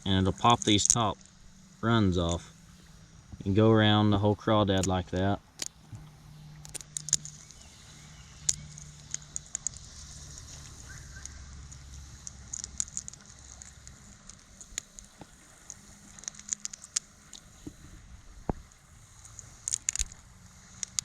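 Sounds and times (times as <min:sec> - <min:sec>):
faint steady hum: 0:00.0 - 0:21.0
shell cracking and clicking: 0:00.4 - 0:01.5, 0:04.7 - 0:17.8, 0:18.4 - 0:21.0.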